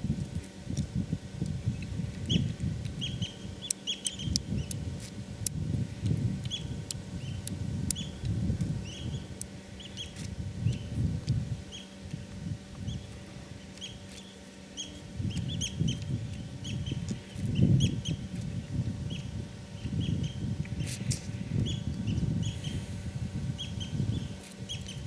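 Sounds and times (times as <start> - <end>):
low muffled rumble: 0.0 - 13.7
bird chirping: 2.3 - 4.8, 8.8 - 10.9, 12.9 - 17.0.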